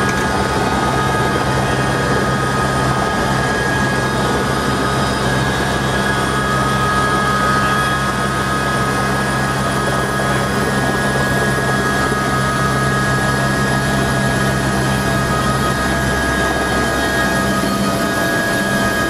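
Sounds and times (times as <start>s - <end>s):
helicopter rotor and turbine drone: 0.0s - 19.0s
high turbine whine: 0.0s - 19.0s.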